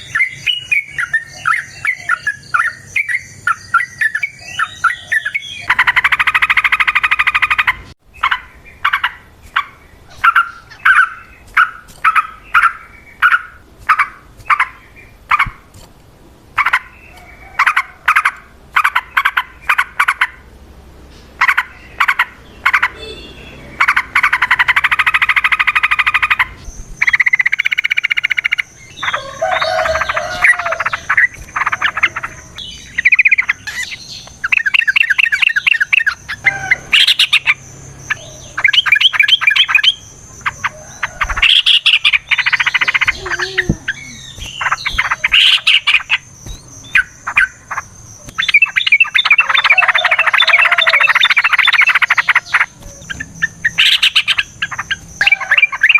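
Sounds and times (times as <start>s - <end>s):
birds singing trilled chatter: 0.0s - 15.9s, 16.5s - 55.9s.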